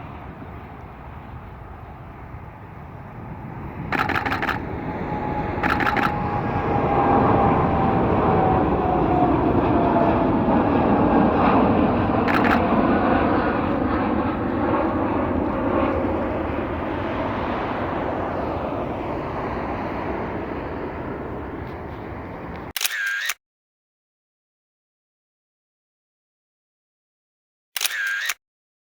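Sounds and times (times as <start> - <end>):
jet engines roaring on take-off: 0.0 - 22.8
camera shutter clicks: 3.9 - 4.6, 5.6 - 6.1, 12.3 - 12.7, 22.8 - 23.4, 27.8 - 28.4.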